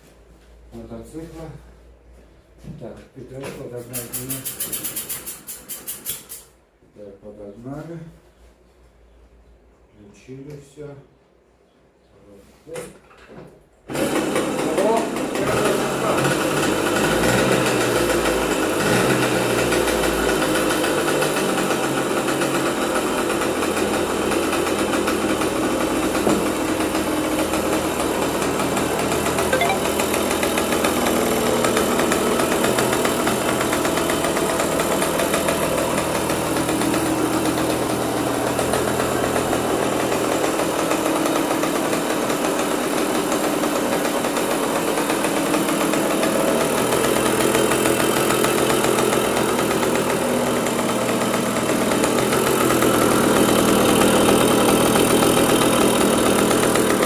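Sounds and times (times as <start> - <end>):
moped two-stroke engine running: 13.9 - 57.0.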